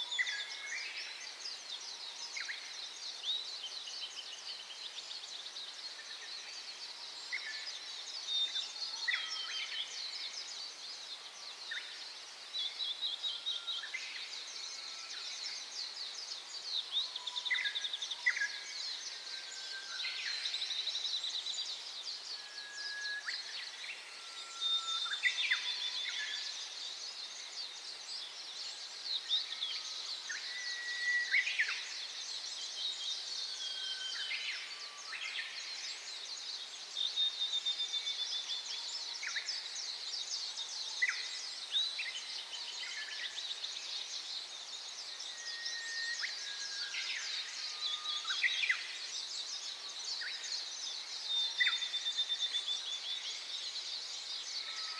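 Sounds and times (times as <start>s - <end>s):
songbirds chirping and twittering: 0.0s - 54.9s.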